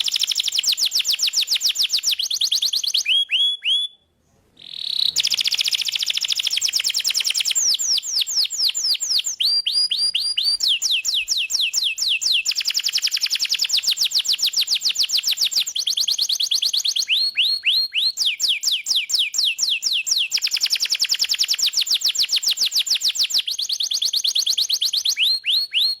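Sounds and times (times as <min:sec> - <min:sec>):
canary singing trills: 0:00.0 - 0:04.0, 0:04.6 - 0:26.0.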